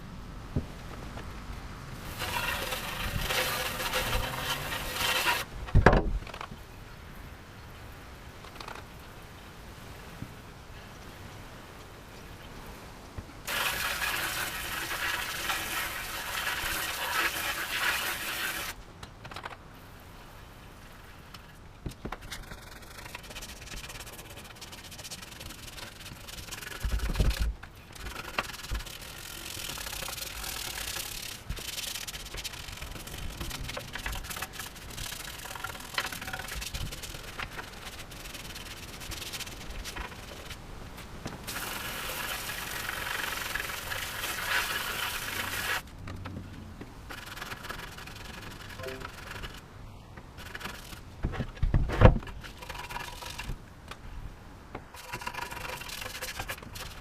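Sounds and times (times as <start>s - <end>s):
scrubbing metal plate: 2.1s - 5.5s, 13.5s - 18.8s.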